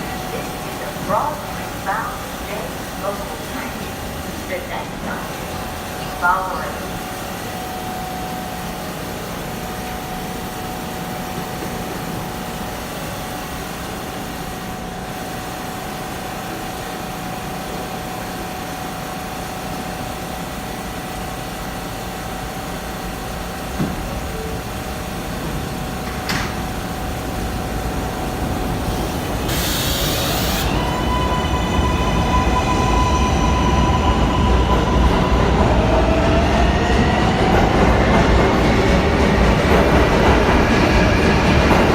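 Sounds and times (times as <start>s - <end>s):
subway hum with held tone: 0.0s - 41.9s
train high whining tones: 24.2s - 41.9s
air hiss: 29.0s - 30.7s.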